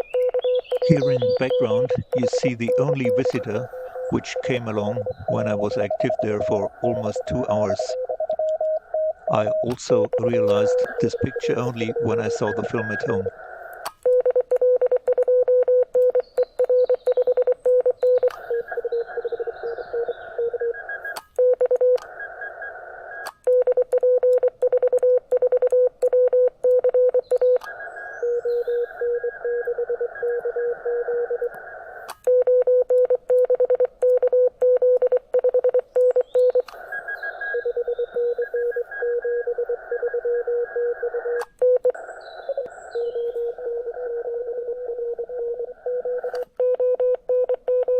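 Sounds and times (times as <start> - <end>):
morse code beeping tone: 0.0 - 13.3, 14.0 - 22.0, 32.3 - 47.9
radio band hiss: 0.8 - 8.1, 9.2 - 14.0, 22.0 - 23.4, 27.6 - 29.2, 31.1 - 32.2, 36.6 - 41.4.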